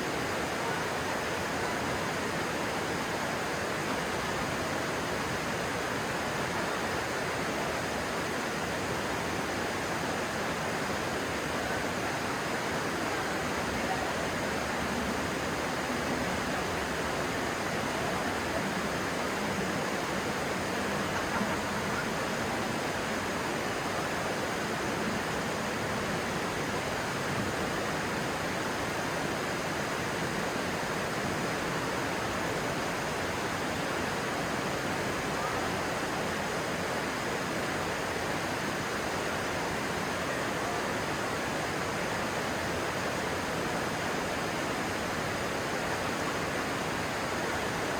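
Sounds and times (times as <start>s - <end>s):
stream water flowing: 0.0s - 47.9s.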